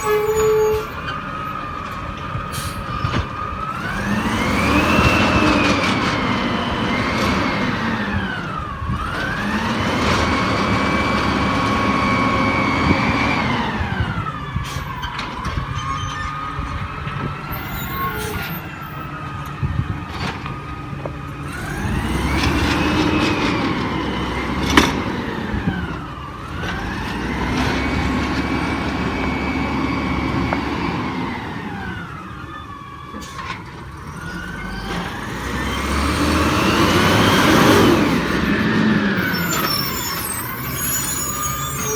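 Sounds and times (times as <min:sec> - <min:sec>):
garbage truck hydraulic whine: 0:21.4 - 0:41.9.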